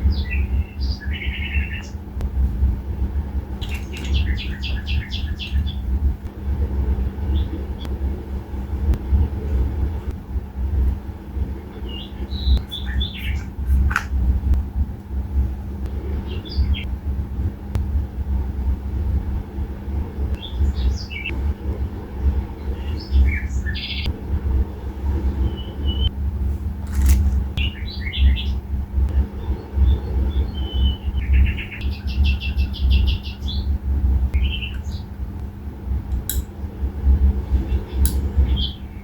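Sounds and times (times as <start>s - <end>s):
small songbirds chirping: 0.0s - 2.1s, 3.6s - 6.0s, 11.7s - 13.9s, 20.4s - 21.4s, 22.5s - 24.1s, 27.6s - 35.2s, 37.6s - 39.0s
constant low rumble: 0.0s - 39.0s.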